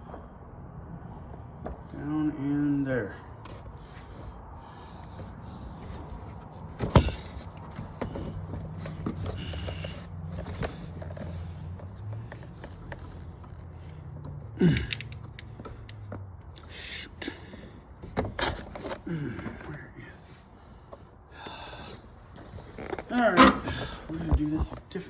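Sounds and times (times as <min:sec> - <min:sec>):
car body parts knocking and rattling: 0:05.1 - 0:16.6, 0:17.4 - 0:19.7, 0:20.9 - 0:25.0.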